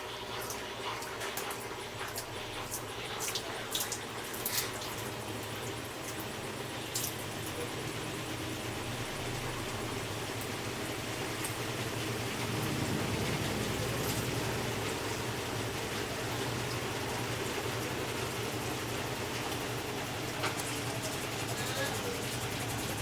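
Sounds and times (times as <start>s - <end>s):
washing machine spinning: 0.0s - 23.0s.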